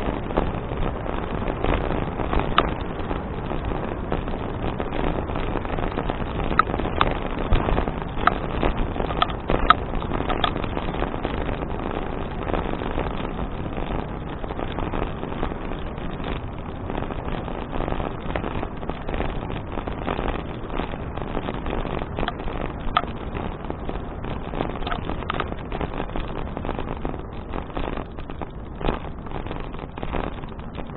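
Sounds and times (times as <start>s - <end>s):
bicycle rumbling on pavement: 0.0s - 30.9s
wind buffeting microphone: 0.0s - 30.9s
sharp clicks and knocks: 9.0s - 10.6s, 22.2s - 23.2s, 24.8s - 25.5s.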